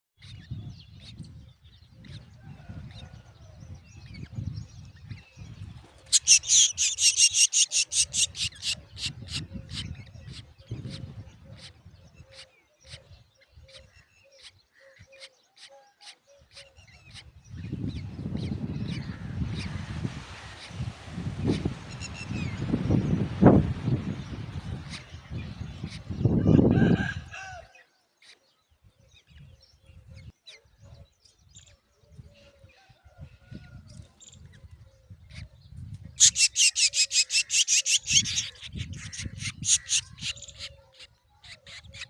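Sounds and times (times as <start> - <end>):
chicks begging calls: 6.0 - 11.0, 36.2 - 42.0.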